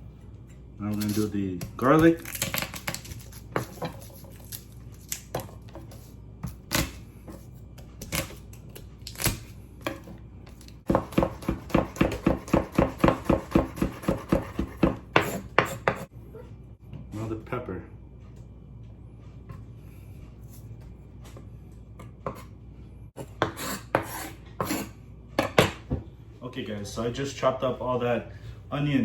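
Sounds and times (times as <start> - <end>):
knife chopping garlic: 1.0 - 16.1, 23.2 - 25.8.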